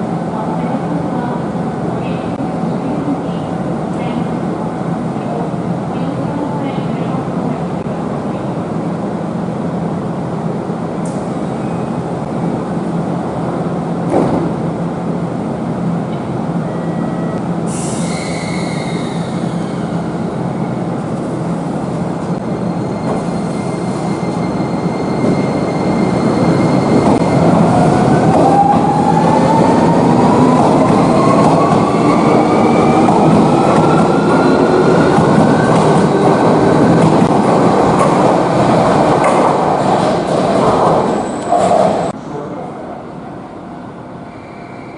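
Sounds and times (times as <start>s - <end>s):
train wheels rumbling on rail: 17.4s - 42.2s.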